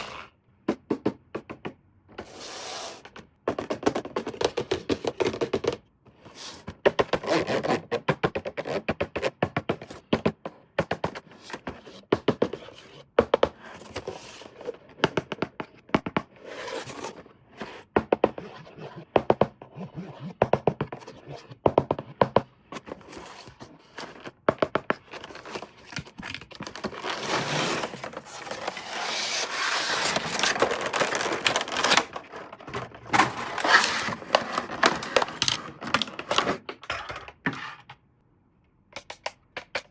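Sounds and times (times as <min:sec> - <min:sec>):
scratchy scraping: 0:25.0 - 0:36.5.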